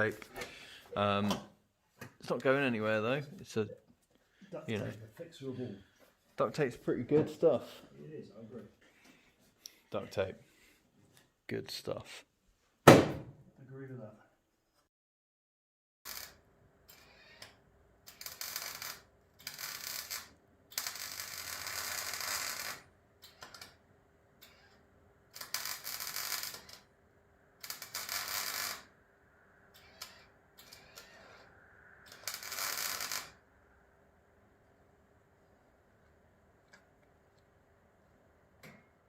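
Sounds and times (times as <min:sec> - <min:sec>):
welder crackling: 0:16.1 - 0:23.8, 0:24.4 - 0:26.9, 0:27.6 - 0:29.0, 0:29.7 - 0:33.5.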